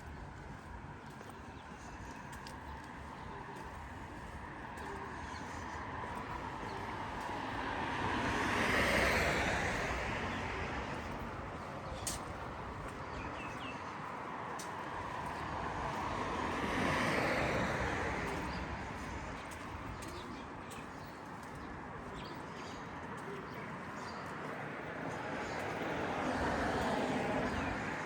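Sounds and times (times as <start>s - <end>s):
background traffic: 0.0s - 28.0s
vehicle passing by: 6.0s - 12.2s.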